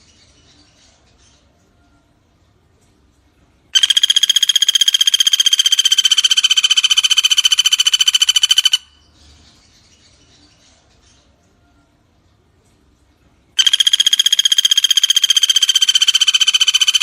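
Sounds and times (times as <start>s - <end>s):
faint bird chirping: 0.0s - 17.0s
woodpecker rattling call: 3.8s - 9.0s, 13.6s - 17.0s.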